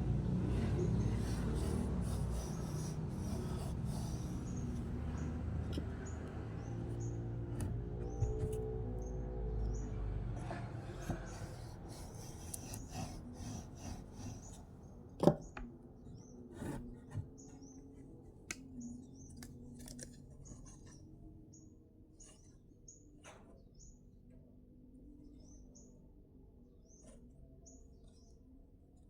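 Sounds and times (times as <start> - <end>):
rubbing and scraping wood: 0.4 - 8.6, 10.4 - 15.4, 16.5 - 17.6.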